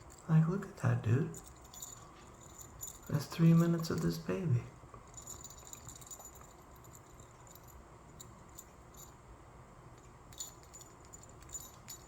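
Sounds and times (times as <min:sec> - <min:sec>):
small bell tinkling: 0:01.3 - 0:04.3, 0:05.0 - 0:09.2, 0:10.0 - 0:12.0.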